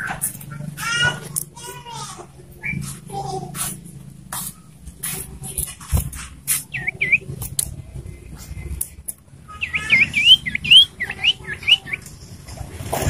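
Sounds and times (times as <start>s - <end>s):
bird chirping and whistling: 2.6s - 2.9s, 6.5s - 7.4s, 9.5s - 12.1s.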